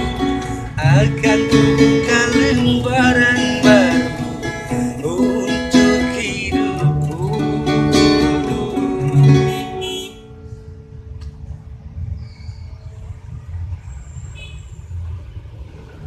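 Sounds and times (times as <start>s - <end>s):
plucked guitar melody: 0.0s - 11.4s.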